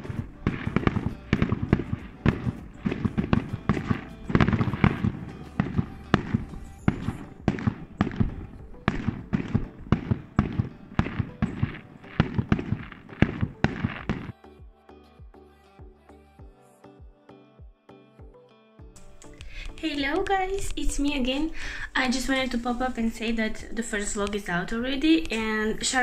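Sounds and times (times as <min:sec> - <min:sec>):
fireworks bangs and crackles: 0:00.0 - 0:14.4.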